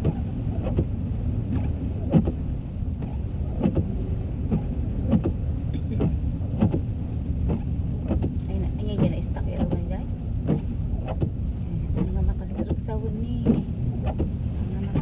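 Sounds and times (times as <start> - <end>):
engine and tyres rumbling: 0.0 - 15.0.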